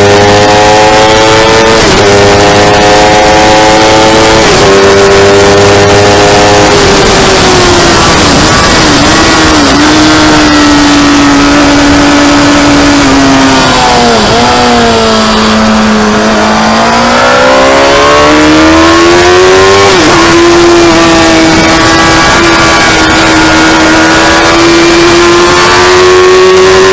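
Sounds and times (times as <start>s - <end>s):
motorcycle engine running hard: 0.0s - 26.9s.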